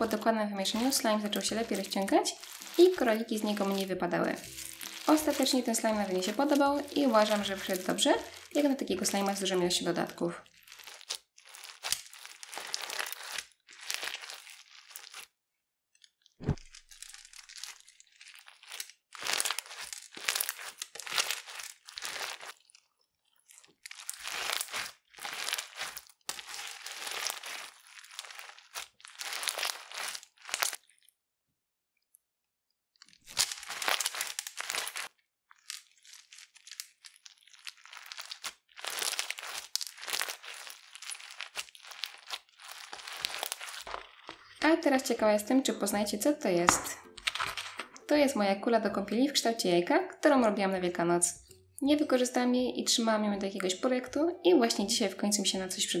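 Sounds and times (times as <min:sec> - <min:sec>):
crunchy slime being squeezed: 0:00.1 - 0:09.6, 0:10.4 - 0:15.4, 0:16.0 - 0:31.1, 0:32.9 - 0:44.6.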